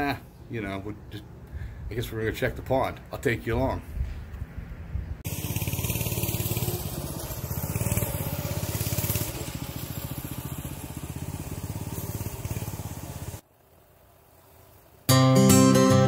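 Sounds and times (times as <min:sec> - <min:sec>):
small engine running: 0:05.3 - 0:13.4.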